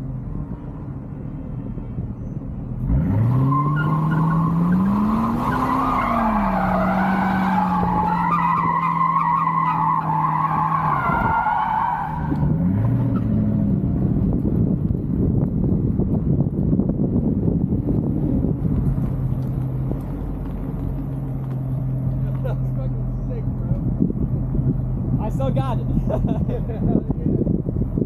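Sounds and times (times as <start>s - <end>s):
tyres squealing: 3.5s - 12.5s.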